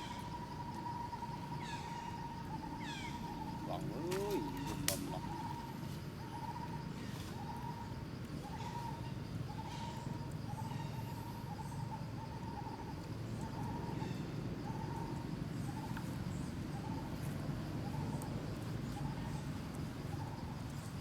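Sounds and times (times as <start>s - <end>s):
bird call: 2.8s - 5.7s.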